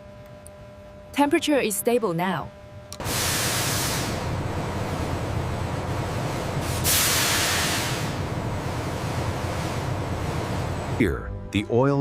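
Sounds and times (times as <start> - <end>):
factory machinery rumbling: 2.9 - 12.0
loud hissing bursts: 3.0 - 4.4, 6.5 - 10.1.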